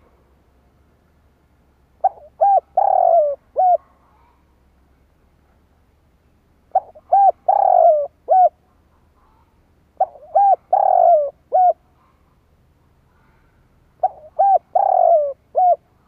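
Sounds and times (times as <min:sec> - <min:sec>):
dove cooing: 0:02.0 - 0:04.0, 0:06.7 - 0:08.6, 0:10.0 - 0:11.8, 0:14.0 - 0:16.0.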